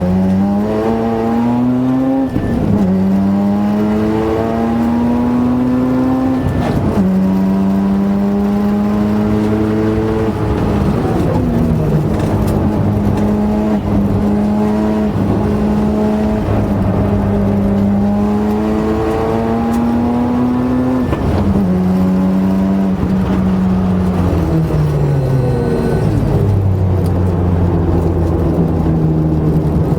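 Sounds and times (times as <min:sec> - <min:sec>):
vehicle running: 0:00.0 - 0:29.9
transmission whine: 0:00.4 - 0:29.3.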